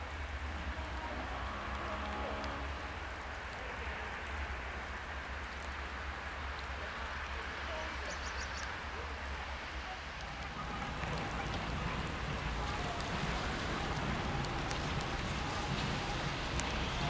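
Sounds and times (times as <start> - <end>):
rain hissing: 0.0 - 17.0
faint ticks: 0.8 - 2.9
low rumble: 10.2 - 17.0.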